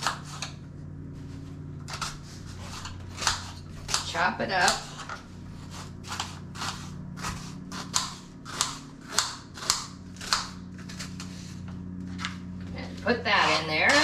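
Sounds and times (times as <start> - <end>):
knife chopping onion: 0.0 - 0.6, 1.8 - 11.3
faint low hum: 0.0 - 14.0.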